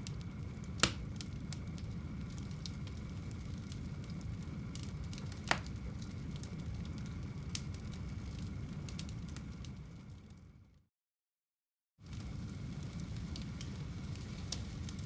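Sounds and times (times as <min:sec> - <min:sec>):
fire crackling: 0:00.0 - 0:10.6, 0:12.0 - 0:15.0
fire flames rumbling: 0:00.0 - 0:10.8, 0:12.0 - 0:15.0
sharp pop of burning wood: 0:00.8 - 0:01.1, 0:05.2 - 0:05.8.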